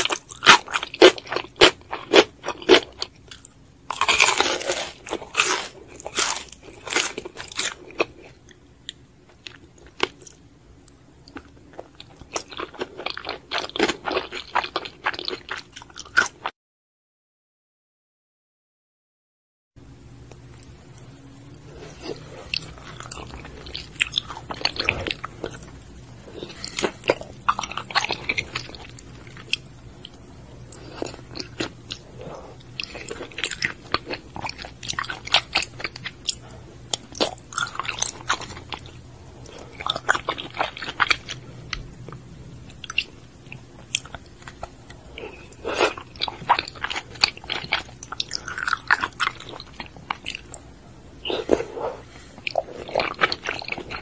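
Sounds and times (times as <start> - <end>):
wet chewing and mouth sounds: 20.3 - 54.0.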